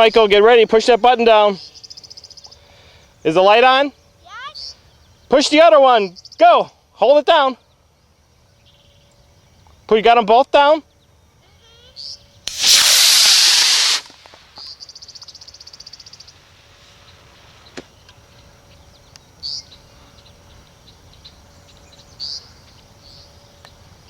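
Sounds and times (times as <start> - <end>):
small birds chirping: 0.7 - 6.7, 7.4 - 12.4, 13.9 - 24.0
rocket motor rushing hiss: 12.4 - 18.0.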